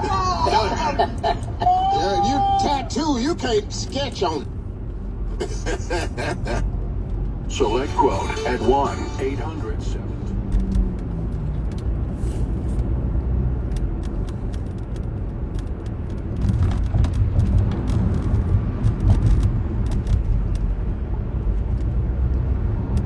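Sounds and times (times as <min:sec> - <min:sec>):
car road rumble: 0:00.0 - 0:23.0.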